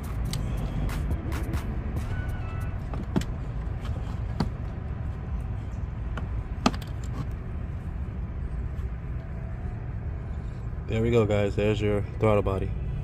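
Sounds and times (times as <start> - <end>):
steady low rumble: 0.0 - 13.0
sharp clicks and knocks: 6.1 - 7.4.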